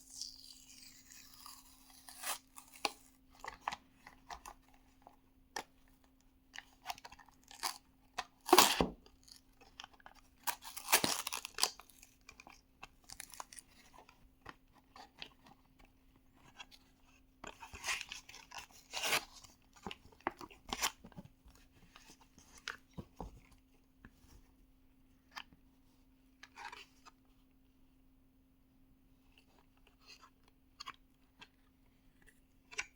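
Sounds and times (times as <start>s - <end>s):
plastic packaging crinkling and tearing: 8.4s - 13.8s.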